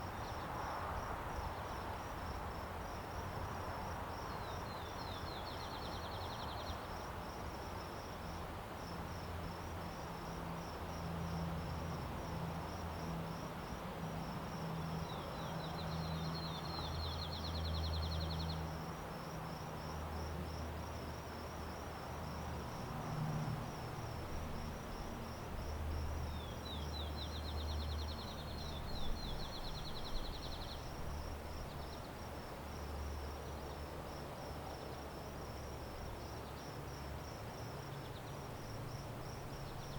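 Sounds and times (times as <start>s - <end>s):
insects chirping: 0.0s - 39.9s
bird song with trill: 15.1s - 18.6s, 26.3s - 30.9s.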